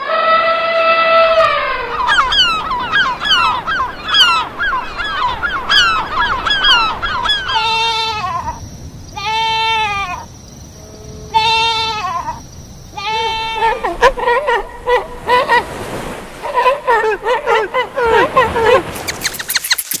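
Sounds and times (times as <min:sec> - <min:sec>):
geese honking: 0:00.0 - 0:08.6
goat bleating: 0:11.3 - 0:12.3.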